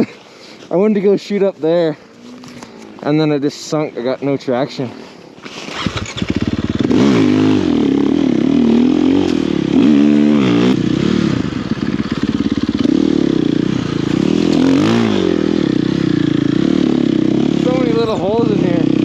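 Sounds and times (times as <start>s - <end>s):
snow bike engine revving: 5.4s - 19.0s.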